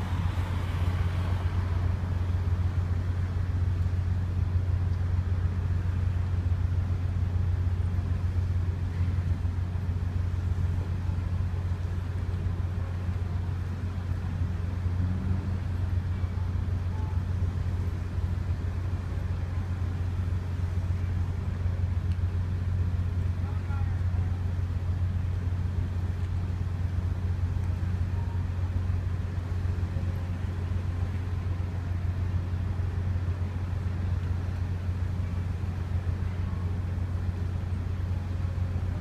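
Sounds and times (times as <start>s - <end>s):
ferry engine droning: 0.0s - 39.0s.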